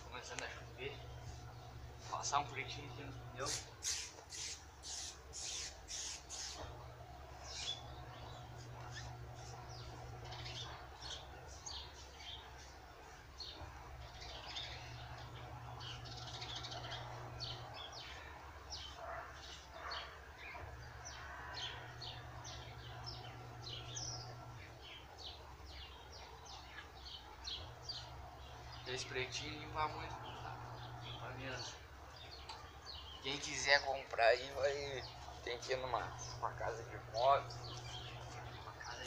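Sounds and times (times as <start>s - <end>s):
small birds chirping: 0.0s - 39.0s
low hum: 20.3s - 25.2s.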